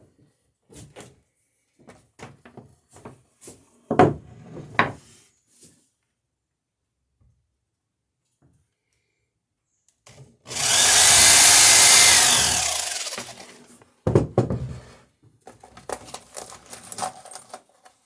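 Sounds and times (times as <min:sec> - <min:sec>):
knock: 0:03.9 - 0:04.2, 0:14.1 - 0:14.7
power tool running: 0:10.5 - 0:13.7.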